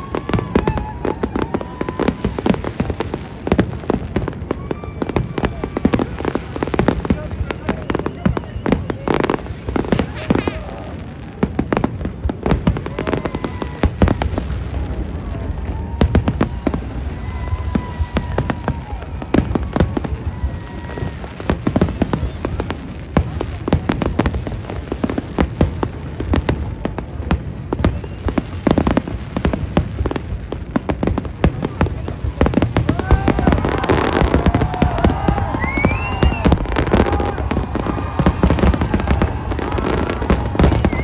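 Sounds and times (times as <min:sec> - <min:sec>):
fireworks bangs and crackles: 0:00.0 - 0:41.0.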